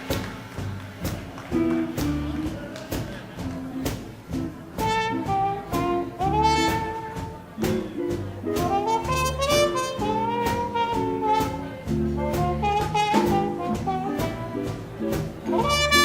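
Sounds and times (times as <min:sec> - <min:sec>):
drum kit: 0:00.0 - 0:16.0
swing band playing jazz: 0:00.0 - 0:16.0
saxophone: 0:04.8 - 0:07.8, 0:08.6 - 0:14.9.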